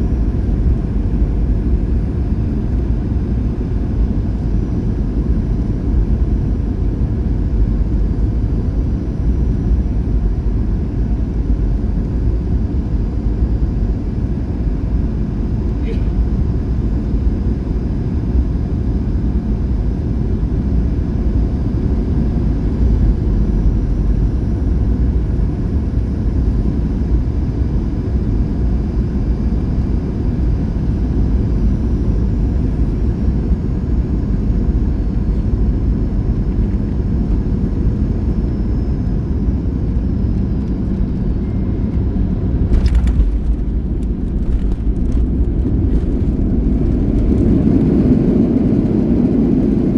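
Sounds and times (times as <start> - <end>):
aircraft cabin rumble: 0.0 - 49.9
wheels rolling on runway: 42.7 - 49.8.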